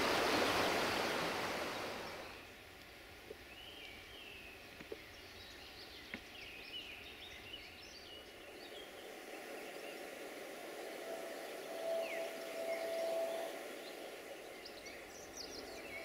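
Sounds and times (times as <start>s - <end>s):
faint outdoor hiss: 0.0s - 16.0s
small birds singing: 3.3s - 16.0s.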